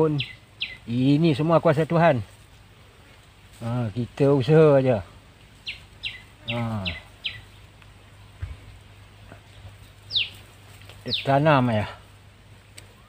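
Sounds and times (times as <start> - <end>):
soft low thump: 8.3 - 8.8.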